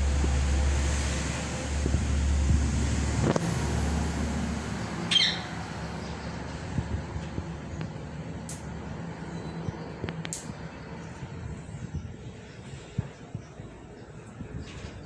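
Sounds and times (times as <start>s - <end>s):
low rumble: 0.0s - 15.0s
parrot squawk: 5.1s - 5.5s.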